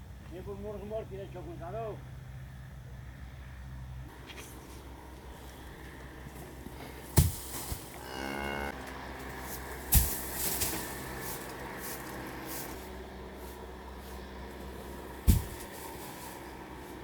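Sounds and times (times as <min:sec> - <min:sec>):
loud sharp thumps: 0:07.2 - 0:07.8, 0:15.2 - 0:15.8
cow mooing: 0:08.0 - 0:08.8, 0:11.6 - 0:12.8.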